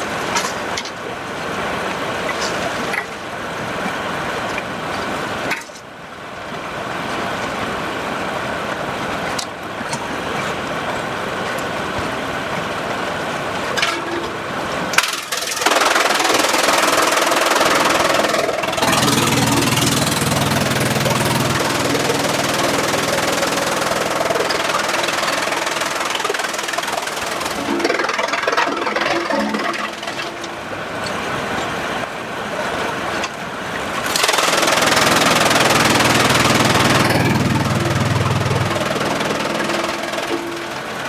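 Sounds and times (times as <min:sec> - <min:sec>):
sawmill machinery din: 0:15.0 - 0:30.8, 0:34.0 - 0:41.0
steady engine hum: 0:15.6 - 0:41.0.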